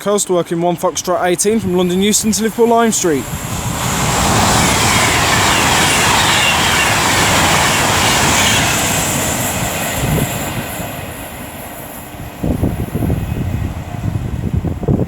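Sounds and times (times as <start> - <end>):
electric train passing: 0.0 - 15.0
faint falling whines: 0.9 - 9.2.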